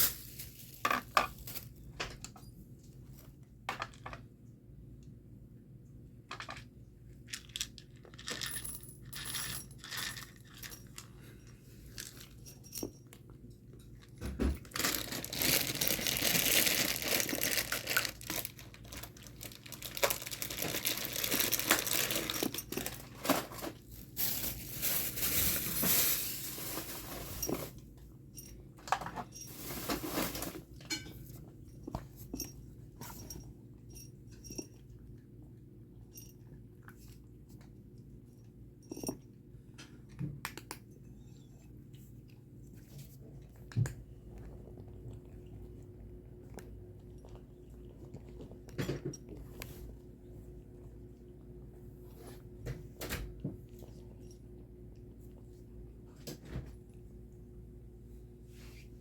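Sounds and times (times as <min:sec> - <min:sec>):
cat food rustling and pouring: 0:00.0 - 0:02.0, 0:06.3 - 0:33.6, 0:41.8 - 0:59.0.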